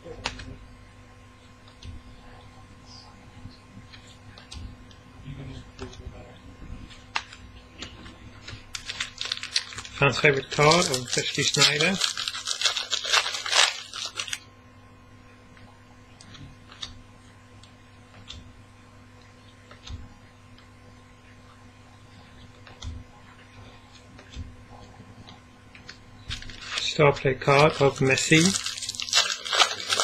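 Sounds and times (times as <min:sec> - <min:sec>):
steady low hum: 0:00.0 - 0:30.0
wrapper crinkling and tearing: 0:08.7 - 0:14.4, 0:26.3 - 0:30.0.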